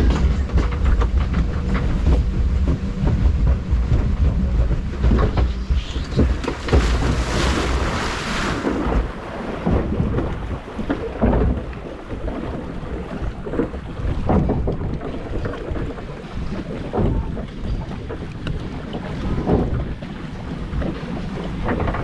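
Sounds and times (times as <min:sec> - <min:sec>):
dull knocks: 0:00.0 - 0:12.6, 0:13.4 - 0:15.9
boat rumbling: 0:00.0 - 0:22.0
water rushing and splashing: 0:00.0 - 0:22.0
wind on microphone: 0:00.0 - 0:22.0.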